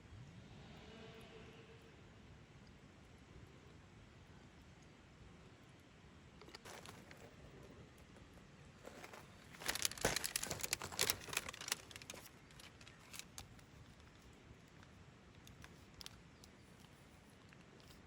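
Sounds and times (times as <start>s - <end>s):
crinkling rustling handling noise: 6.5s - 14.2s.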